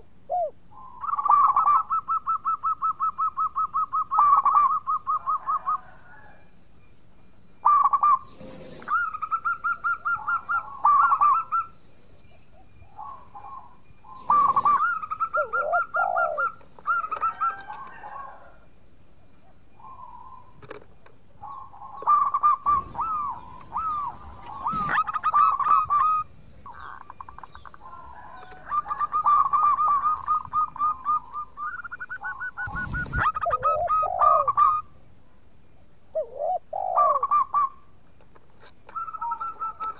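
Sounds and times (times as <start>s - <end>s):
dove cooing: 0.0s - 6.4s, 7.6s - 11.8s, 12.6s - 18.6s, 21.4s - 34.9s, 36.1s - 37.8s, 38.9s - 39.9s.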